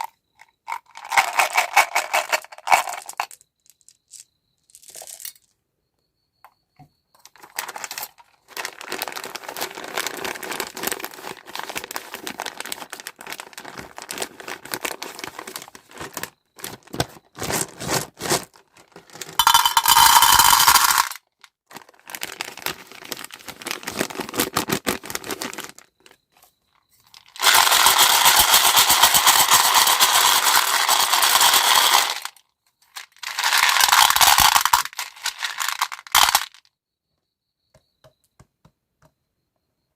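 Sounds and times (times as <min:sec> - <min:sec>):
small hard pieces clattering: 0:00.0 - 0:05.5, 0:07.2 - 0:25.9, 0:27.1 - 0:36.6
plastic packaging crinkling: 0:07.4 - 0:20.1, 0:21.7 - 0:26.0, 0:27.2 - 0:32.3, 0:33.2 - 0:36.5.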